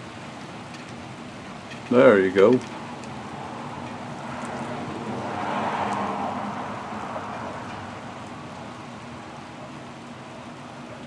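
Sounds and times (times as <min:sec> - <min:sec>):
storm wind rushing: 0:02.8 - 0:08.8.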